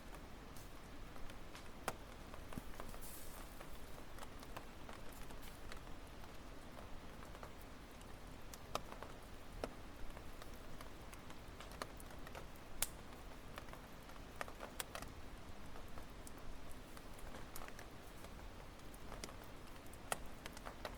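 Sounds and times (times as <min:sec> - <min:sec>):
campfire crackling and popping: 0:00.0 - 0:20.9
fire hissing: 0:02.6 - 0:03.9.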